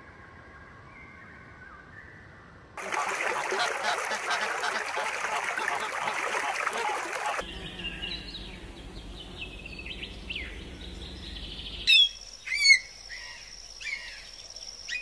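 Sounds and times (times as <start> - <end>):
loud sharp bird calls: 2.8 - 15.0
small birds chirping: 4.3 - 15.0.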